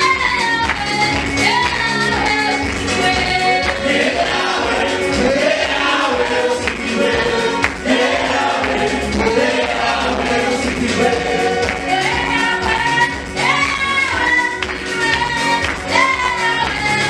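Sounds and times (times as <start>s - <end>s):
live band with steady beat: 0.0s - 17.0s
gospel choir singing: 2.6s - 17.0s.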